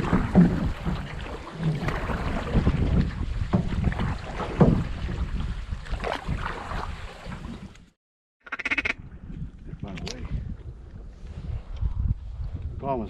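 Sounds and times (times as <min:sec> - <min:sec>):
wind buffeting microphone: 0:00.0 - 0:07.9, 0:08.8 - 0:13.0
small boat moving on water: 0:00.0 - 0:08.0.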